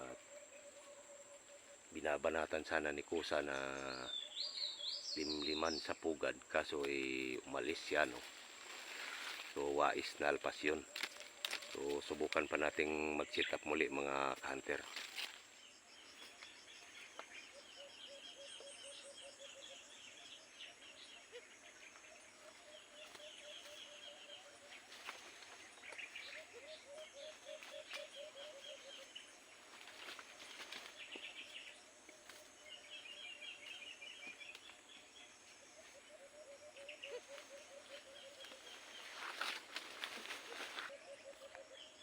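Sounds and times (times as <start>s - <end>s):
faint rural outdoor ambience: 0.0s - 42.0s
trilling calls: 16.2s - 42.0s.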